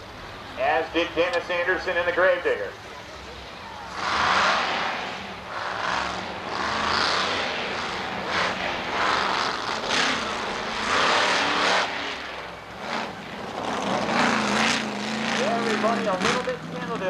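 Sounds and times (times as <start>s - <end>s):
monster truck engine revving: 3.2s - 17.0s.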